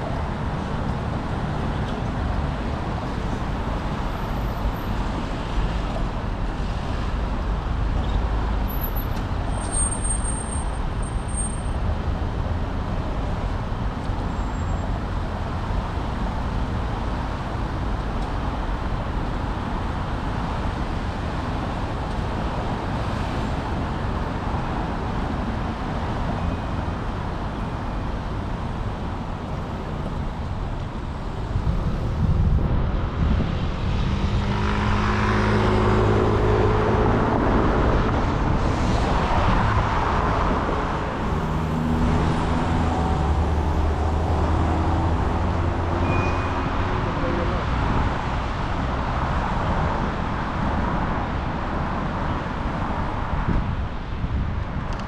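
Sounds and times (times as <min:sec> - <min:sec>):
city traffic: 0:00.0 - 0:55.0
road noise: 0:00.0 - 0:55.0
wind rushing: 0:31.0 - 0:34.4.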